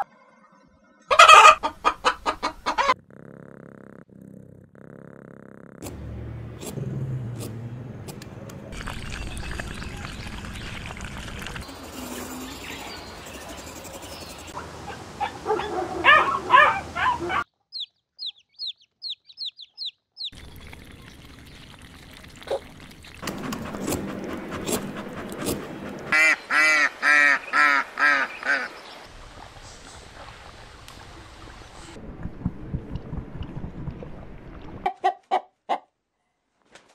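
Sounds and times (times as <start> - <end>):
water splashing: 8.6 - 13.0, 20.4 - 34.9
waterfowl honking quacks: 26.1 - 28.8.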